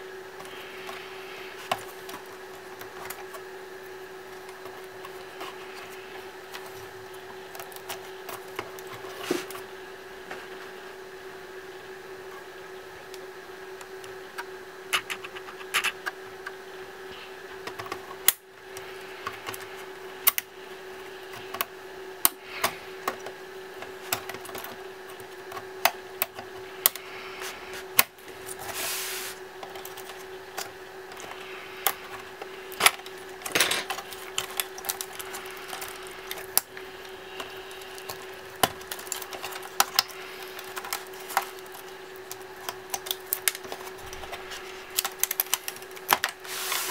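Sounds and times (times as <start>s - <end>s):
steady hum: 0.0s - 46.9s
scraping or rustling: 28.5s - 29.4s, 46.4s - 46.9s.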